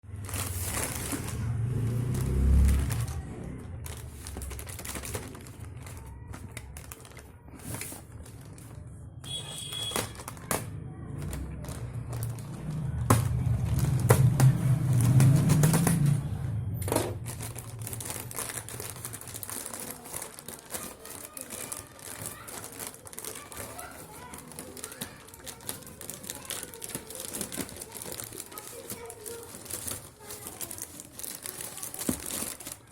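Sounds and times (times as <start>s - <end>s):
low handling rumble: 0.2s - 6.1s, 10.7s - 19.3s.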